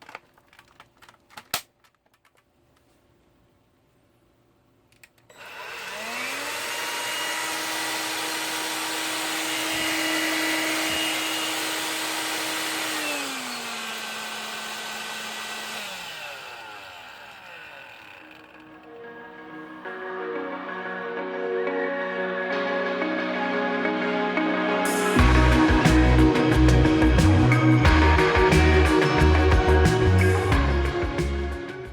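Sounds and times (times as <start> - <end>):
vacuum motor whining: 5.3 - 19.5.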